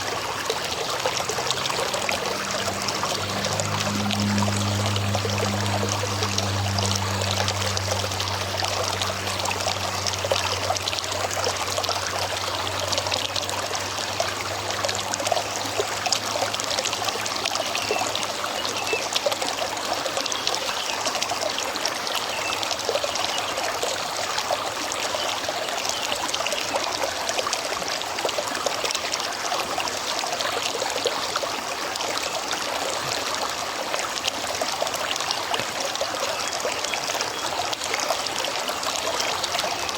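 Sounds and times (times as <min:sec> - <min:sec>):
low steady hum: 0:00.0 - 0:18.2
river water babbling: 0:00.0 - 0:39.9.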